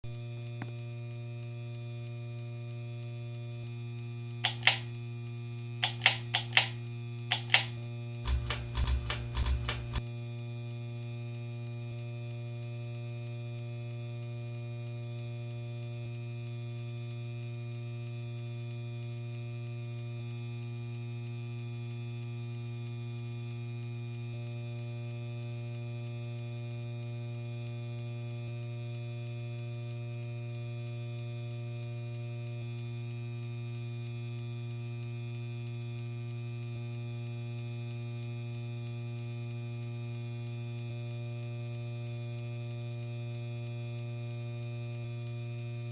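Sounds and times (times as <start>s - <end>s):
ceiling fan motor humming: 4.4s - 4.9s, 5.8s - 10.0s.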